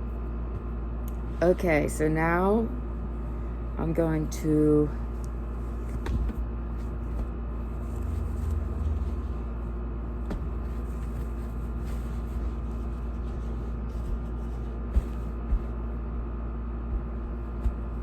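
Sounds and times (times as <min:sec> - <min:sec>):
low rumble and hum: 0:00.0 - 0:18.0.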